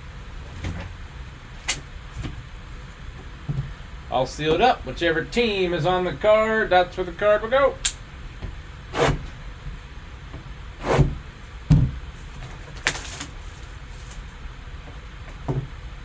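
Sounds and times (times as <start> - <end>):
cardboard box rustling and sliding: 10.8 - 11.2, 12.1 - 14.4.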